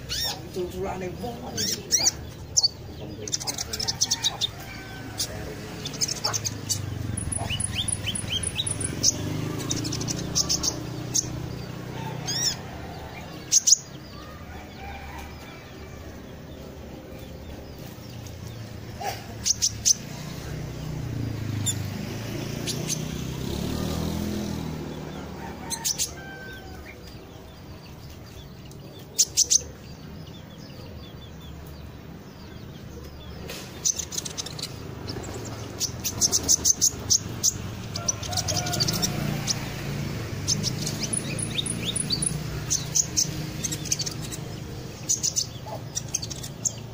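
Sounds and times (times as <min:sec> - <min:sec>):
songbird chirping: 0:00.0 - 0:46.9.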